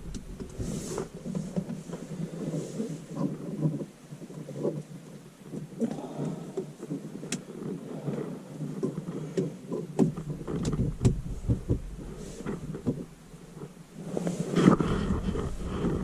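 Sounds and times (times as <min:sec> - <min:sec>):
low rumble: 0:00.0 - 0:02.4, 0:10.4 - 0:16.0.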